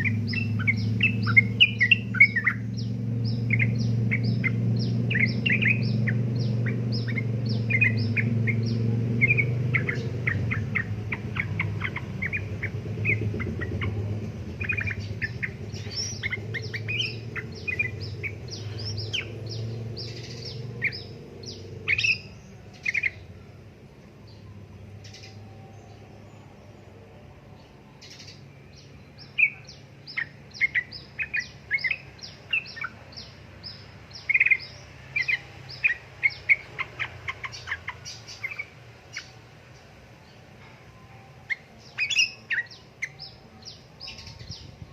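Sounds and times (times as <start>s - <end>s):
bird chattering chirps: 0.0s - 23.2s, 29.2s - 39.4s, 41.5s - 44.7s
steady low hum: 0.0s - 27.9s.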